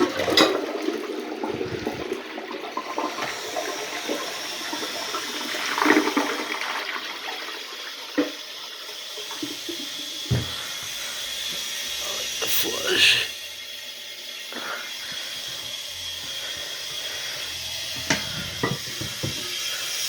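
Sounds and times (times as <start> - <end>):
toilet flushing: 0.0 - 20.0
tank refilling hiss: 3.0 - 20.0.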